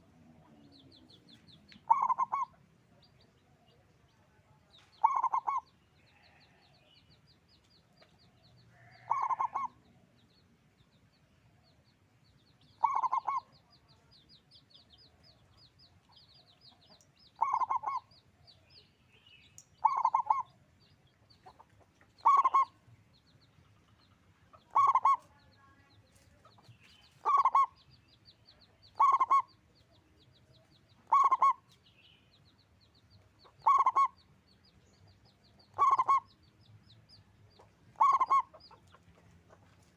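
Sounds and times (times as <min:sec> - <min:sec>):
dove cooing: 0:01.9 - 0:02.5, 0:05.0 - 0:05.7, 0:08.9 - 0:09.7, 0:12.8 - 0:13.5, 0:17.4 - 0:18.1, 0:19.8 - 0:20.5, 0:22.2 - 0:22.7, 0:24.7 - 0:25.2, 0:27.2 - 0:27.7, 0:29.0 - 0:29.5, 0:31.1 - 0:31.6, 0:33.6 - 0:34.1, 0:35.7 - 0:36.3, 0:37.9 - 0:38.6.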